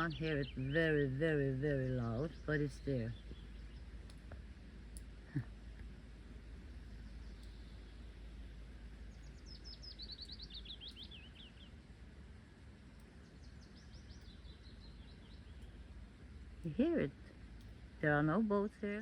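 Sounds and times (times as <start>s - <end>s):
steady low rumble: 0.0s - 19.0s
songbird singing high notes: 9.2s - 11.7s.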